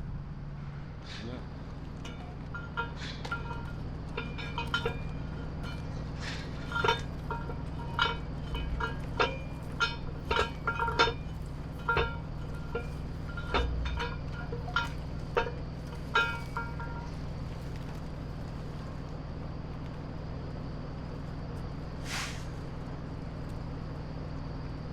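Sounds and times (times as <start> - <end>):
steady low hum: 0.0 - 24.9
light metallic clinks: 1.7 - 19.2.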